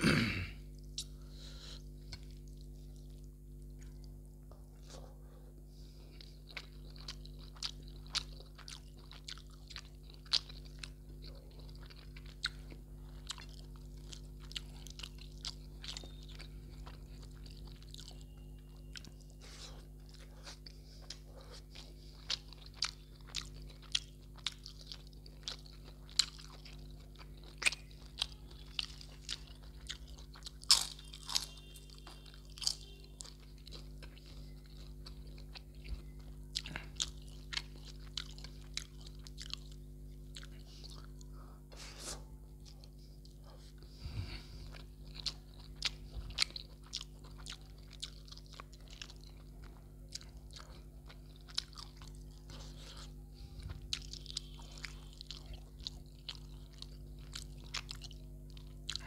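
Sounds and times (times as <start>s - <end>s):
steady low hum: 0.0s - 59.0s
wet chewing clicks and crunches: 6.1s - 41.3s, 44.6s - 59.0s.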